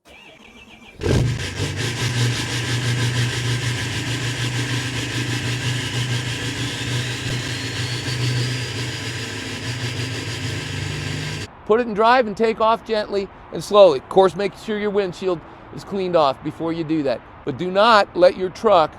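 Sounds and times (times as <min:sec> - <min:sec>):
diesel engine starting and idling: 0:00.0 - 0:11.5
faint rising whine: 0:01.0 - 0:11.5.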